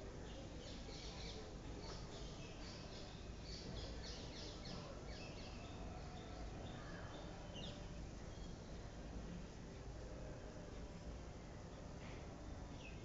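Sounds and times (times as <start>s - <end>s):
low background noise: 0.0s - 13.0s.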